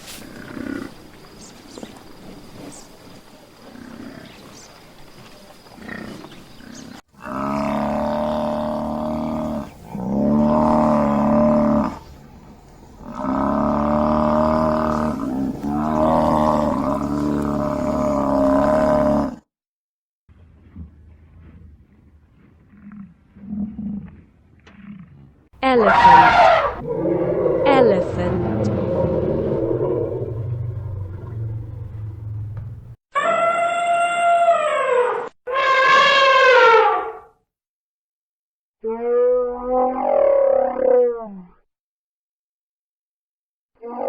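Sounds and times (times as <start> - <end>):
giraffe calls: 25.6 - 37.1.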